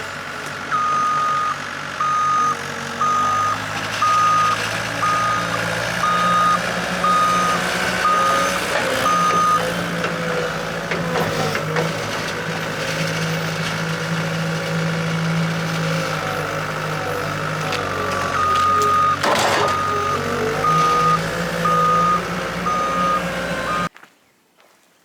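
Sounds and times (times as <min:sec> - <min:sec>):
machine engine running: 0:00.0 - 0:23.9
reversing alarm beeping: 0:00.7 - 0:23.9
loud clunk: 0:18.2 - 0:20.2.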